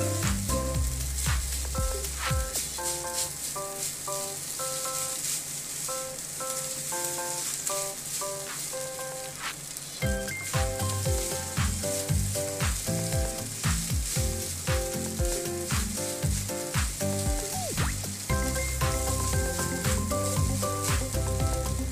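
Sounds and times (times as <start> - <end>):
low thumping beat: 0.0 - 3.1, 10.0 - 21.9
rice sizzling in a wok: 0.0 - 21.9
wooden spatula tossing rice: 0.0 - 21.9.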